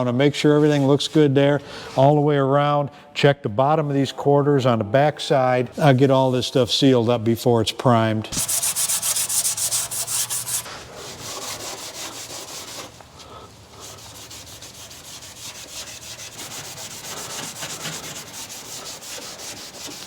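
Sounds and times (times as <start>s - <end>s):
abrasive rubbing sheet metal: 8.3s - 20.0s.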